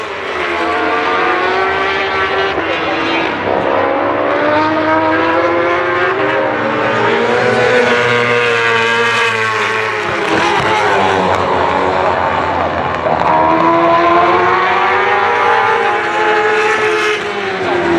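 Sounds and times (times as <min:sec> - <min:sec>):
racing motorcycles passing: 0:00.0 - 0:17.9.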